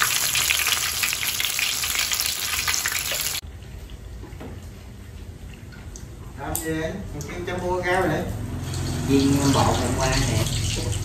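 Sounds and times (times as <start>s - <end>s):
fritters deep-frying in oil: 0.0s - 3.5s, 8.4s - 11.0s.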